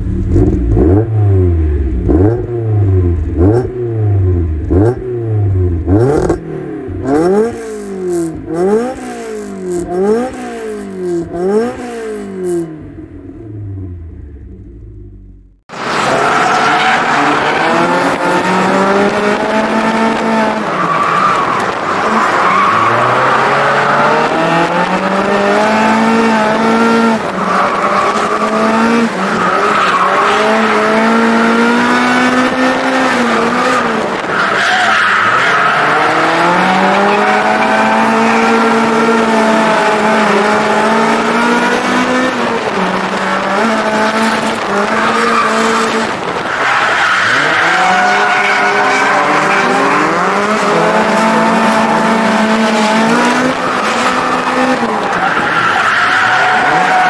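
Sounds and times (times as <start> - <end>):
car engine revving hard: 0.0 - 12.7, 15.7 - 34.4, 35.0 - 55.2
wind noise: 35.8 - 48.0.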